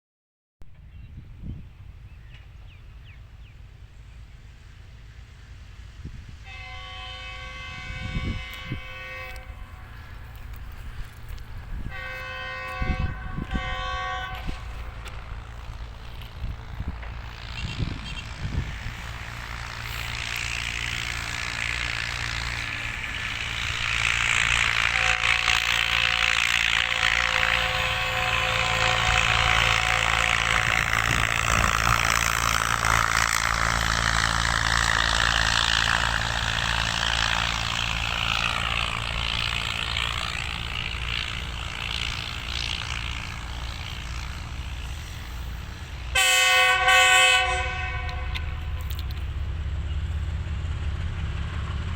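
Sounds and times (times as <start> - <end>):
train rumbling: 0.6 - 51.9
train horn: 6.3 - 10.8, 11.7 - 15.8, 17.0 - 49.2.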